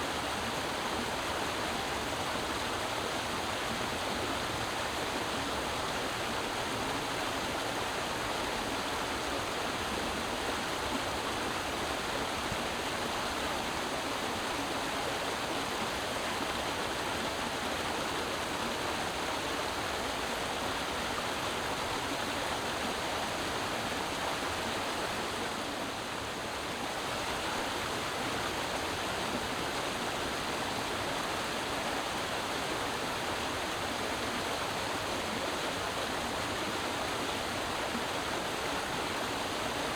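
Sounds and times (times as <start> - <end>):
creek water over rocks: 0.0 - 39.9.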